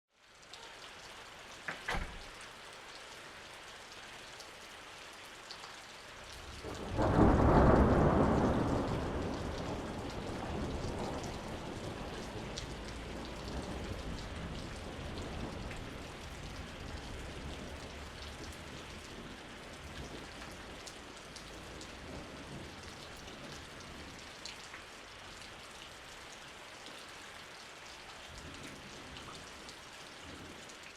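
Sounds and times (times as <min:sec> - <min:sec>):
steady rain falling: 0:00.1 - 0:30.9
rolling thunder clap: 0:06.6 - 0:19.3.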